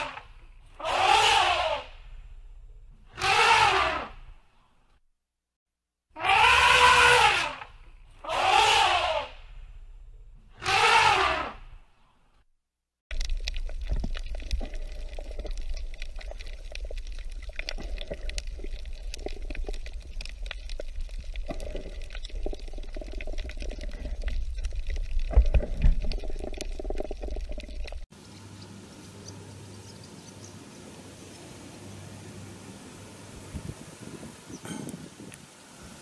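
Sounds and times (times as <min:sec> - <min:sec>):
underwater clicks and crackles: 0:13.1 - 0:28.1
outdoor background hum: 0:28.1 - 0:33.8.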